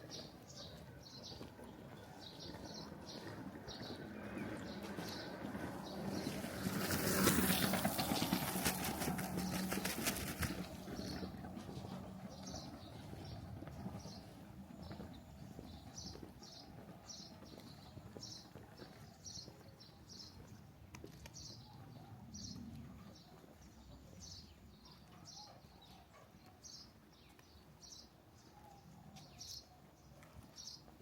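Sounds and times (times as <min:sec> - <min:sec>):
footsteps on wet lane: 0:00.0 - 0:21.4.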